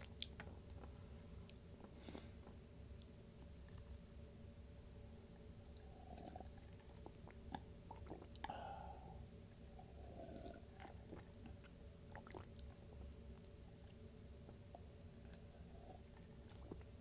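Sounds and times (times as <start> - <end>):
person chewing food: 6.2 - 8.9, 10.2 - 12.8, 15.2 - 17.0.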